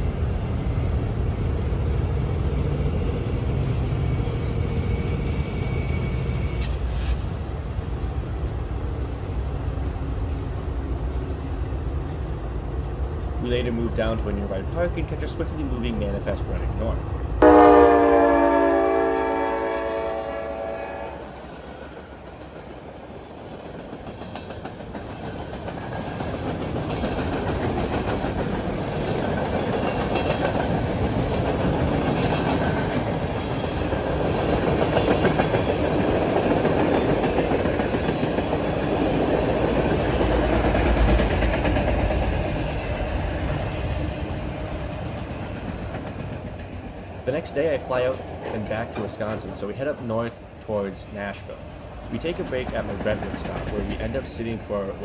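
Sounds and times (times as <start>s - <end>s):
train rumbling and rattling on track: 0.0s - 55.0s
locomotive horn blast: 17.4s - 21.3s.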